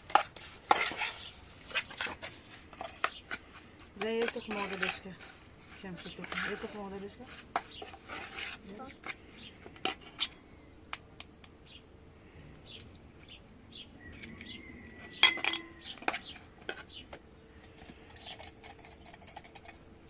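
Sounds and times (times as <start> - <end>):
dishes and utensils clinking: 15.0 - 16.3.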